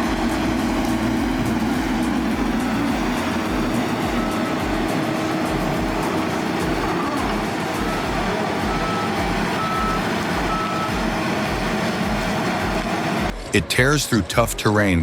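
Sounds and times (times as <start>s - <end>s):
diesel engine running: 0.0s - 13.6s
high-pitched beeps: 2.7s - 11.1s.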